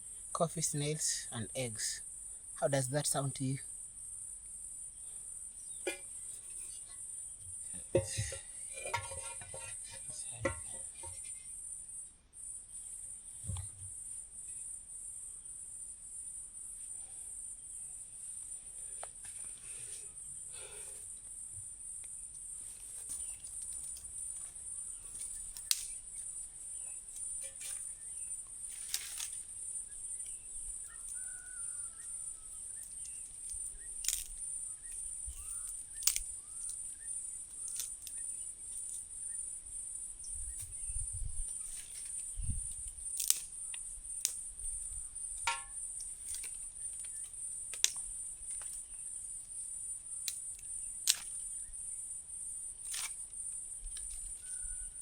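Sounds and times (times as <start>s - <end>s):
crickets chirping: 0.0s - 55.0s
sharp clicks and knocks: 45.4s - 46.5s.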